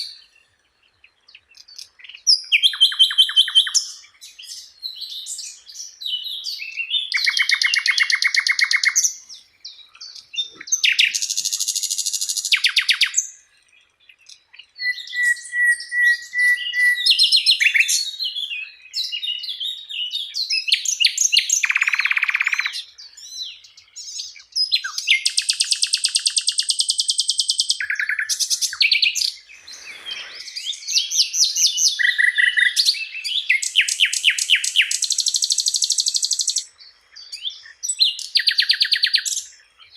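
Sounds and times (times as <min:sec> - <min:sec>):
songbird trills and rattles: 0:07.1 - 0:14.5, 0:24.0 - 0:37.4
bird whistled notes: 0:14.8 - 0:19.5, 0:24.1 - 0:36.7.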